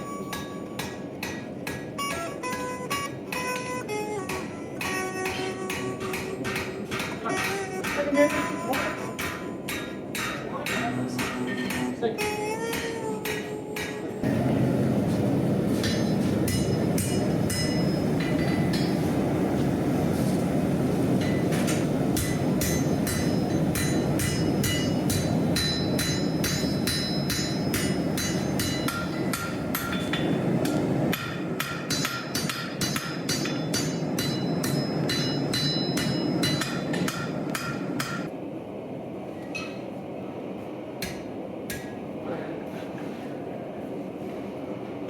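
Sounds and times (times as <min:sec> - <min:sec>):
hammer ringing on anvil: 0:00.0 - 0:14.2, 0:15.8 - 0:19.1, 0:21.2 - 0:38.3
steady rushing noise: 0:14.2 - 0:42.3.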